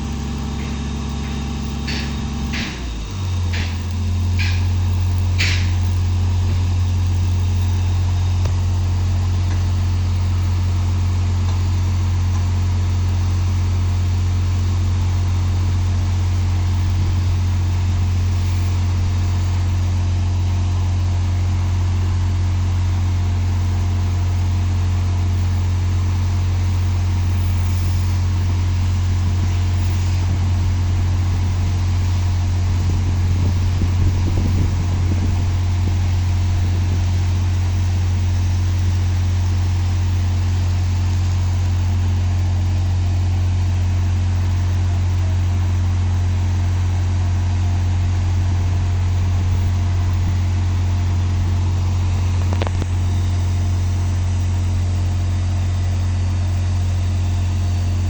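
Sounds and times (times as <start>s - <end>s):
engine droning steadily: 0.0s - 58.0s.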